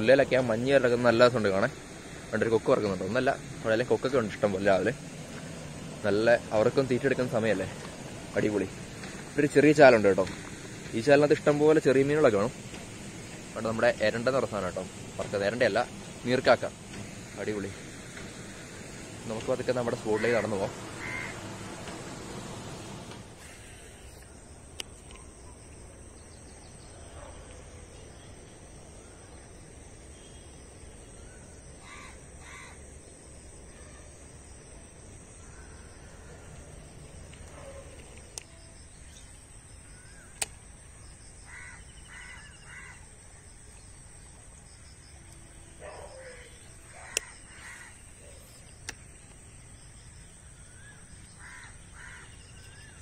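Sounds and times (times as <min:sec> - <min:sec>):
birds making harsh calls: 0:20.0 - 0:21.8, 0:41.5 - 0:43.0, 0:50.7 - 0:53.0
sharp clicks: 0:40.3 - 0:40.6, 0:48.8 - 0:49.4.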